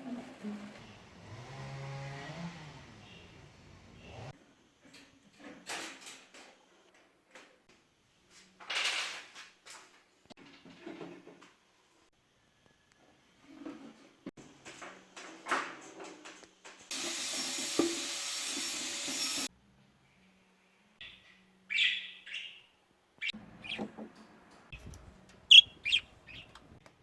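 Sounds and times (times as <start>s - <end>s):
budgerigars chirping: 23.2s - 23.9s, 25.5s - 26.6s.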